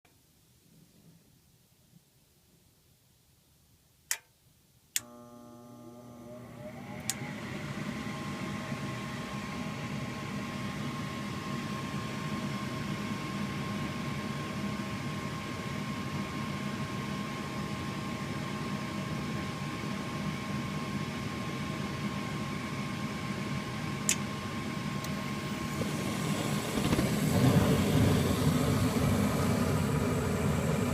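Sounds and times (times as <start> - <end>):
furnace burners rushing: 25.3 - 30.9
inducer motor whining: 25.3 - 30.9.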